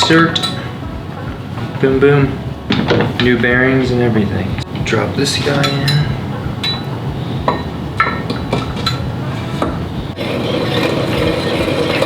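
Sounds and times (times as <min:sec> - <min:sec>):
steady noise: 0:00.0 - 0:12.0
metal engine parts clinking: 0:05.3 - 0:09.9.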